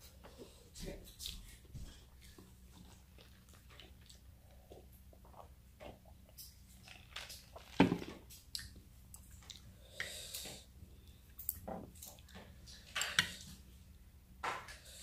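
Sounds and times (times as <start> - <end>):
chewing and wet mouth sounds: 2.2 - 13.1.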